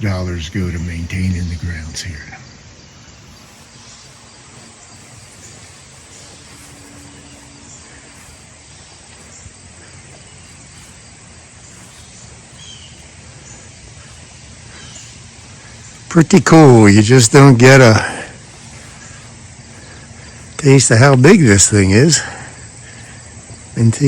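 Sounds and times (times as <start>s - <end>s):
high bird chirps: 0.0s - 16.1s
outdoor background hiss: 0.0s - 24.0s.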